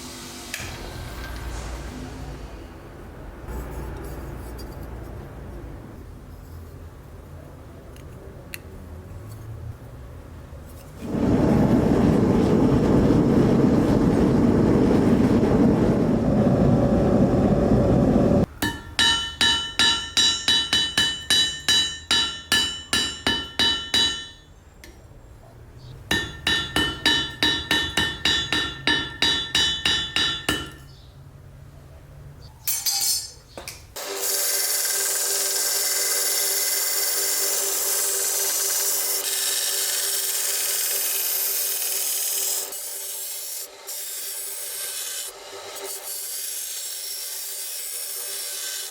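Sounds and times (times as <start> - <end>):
loud machine noise: 11.0 - 18.5
hammer ringing on steel blade: 18.6 - 24.5, 26.1 - 30.8.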